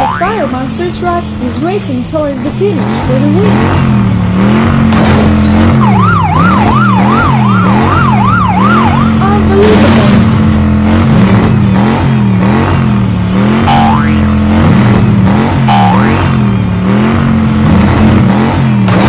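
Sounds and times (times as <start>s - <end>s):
police siren warbling: 0.0s - 0.9s, 5.4s - 9.6s, 13.7s - 14.4s, 15.7s - 16.4s
cartoon monster truck engine drone: 0.0s - 19.0s.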